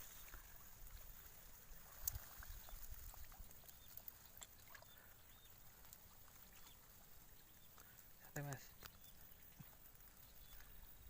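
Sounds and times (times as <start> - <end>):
faint outdoor hiss: 0.0 - 11.0.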